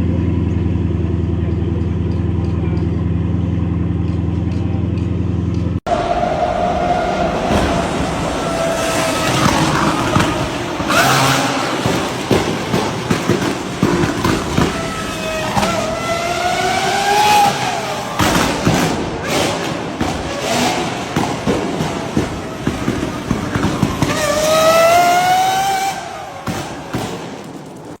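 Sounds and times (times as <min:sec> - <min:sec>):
car engine revving: 0:00.0 - 0:28.0
exhaust cracks and pops: 0:07.5 - 0:28.0.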